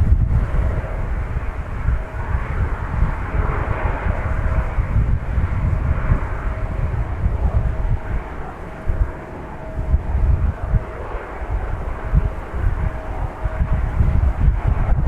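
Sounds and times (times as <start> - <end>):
jet engines roaring: 0.0 - 15.0
wind on microphone: 0.0 - 15.0.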